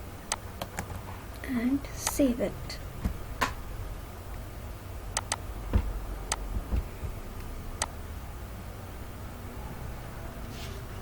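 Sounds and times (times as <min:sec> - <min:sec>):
low background hum: 0:00.0 - 0:11.0
dull low thumps: 0:02.9 - 0:04.0, 0:05.5 - 0:07.8
computer mouse clicks: 0:05.2 - 0:05.4.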